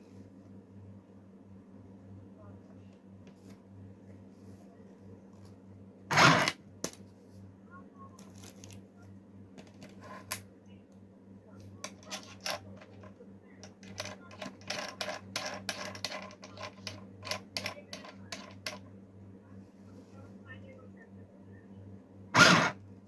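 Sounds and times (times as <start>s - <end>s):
steady low hum: 0.0s - 23.0s
sewing machine clicking and clattering: 13.7s - 18.8s.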